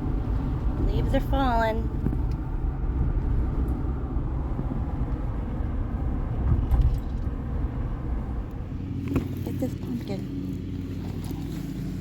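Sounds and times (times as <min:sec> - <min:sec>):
car rumble: 0:00.0 - 0:12.0.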